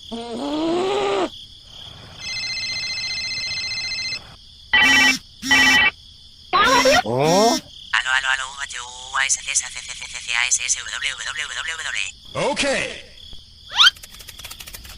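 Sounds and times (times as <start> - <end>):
trilling electronic ring: 2.2 - 4.2, 4.8 - 5.9
electronic sliding tone: 4.8 - 5.9
short beeps: 4.8 - 5.9.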